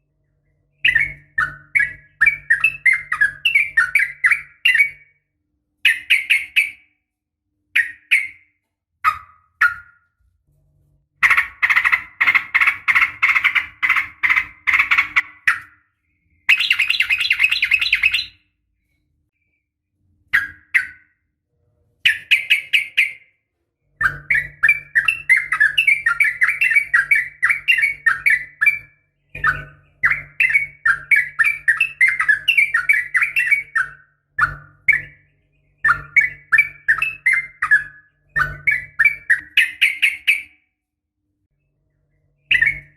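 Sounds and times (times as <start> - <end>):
bird chattering calls: 11.2 - 15.7, 16.5 - 18.4.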